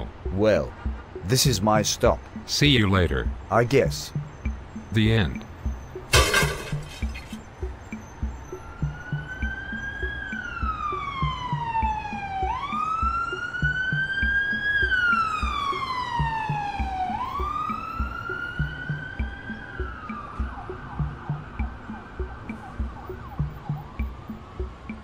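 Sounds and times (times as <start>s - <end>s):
music with steady beat: 4.1s - 25.0s
wailing siren: 8.2s - 25.0s.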